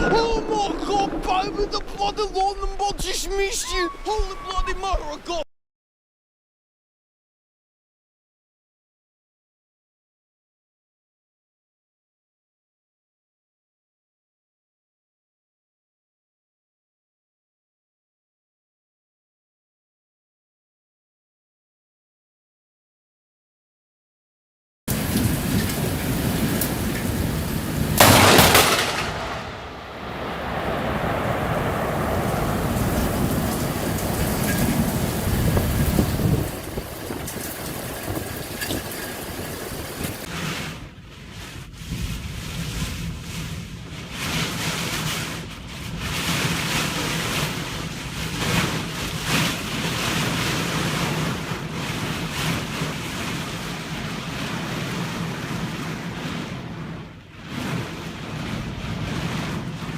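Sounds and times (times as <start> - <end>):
rushing wind and water: 0.0 - 5.4, 24.9 - 59.9
heavy rain downpour: 24.9 - 59.9
wind buffeting microphone: 24.9 - 59.9
loud sharp crash: 28.0 - 33.6
low hum: 28.0 - 35.1.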